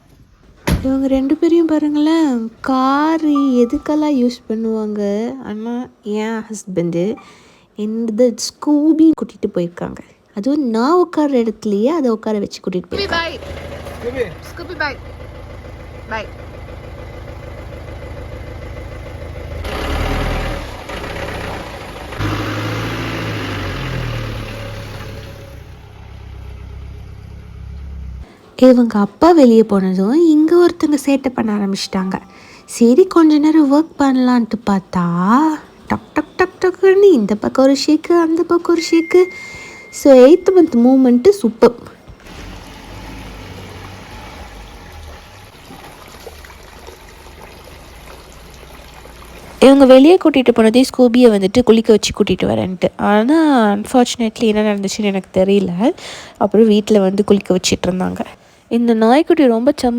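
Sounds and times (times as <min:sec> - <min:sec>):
car engine revving and idling: 0:13.0 - 0:28.3, 0:42.2 - 0:48.6
water running: 0:44.8 - 0:51.0.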